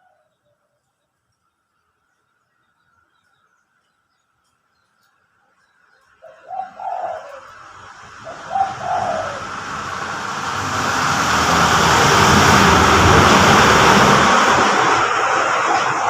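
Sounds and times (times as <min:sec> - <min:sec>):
birds: 0:00.0 - 0:09.7
dove cooing: 0:06.2 - 0:09.8
motor vehicle passing: 0:06.4 - 0:16.0.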